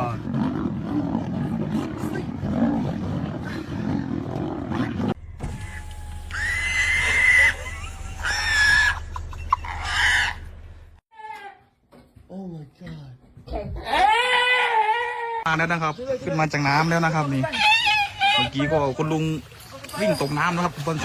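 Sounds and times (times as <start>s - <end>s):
lions growling and snarling: 0.0s - 5.2s
high held cries: 5.5s - 10.5s.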